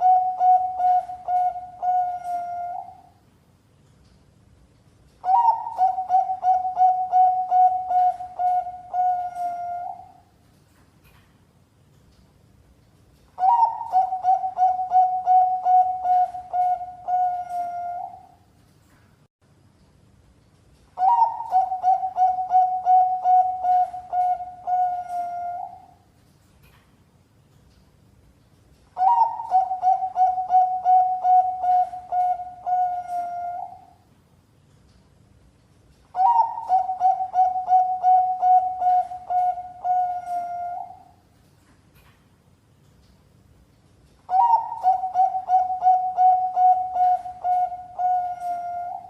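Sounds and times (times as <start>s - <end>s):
dove cooing: 0.0s - 3.1s, 5.2s - 10.2s, 13.4s - 18.4s, 21.0s - 26.0s, 29.0s - 34.0s, 36.2s - 41.1s, 44.3s - 49.0s.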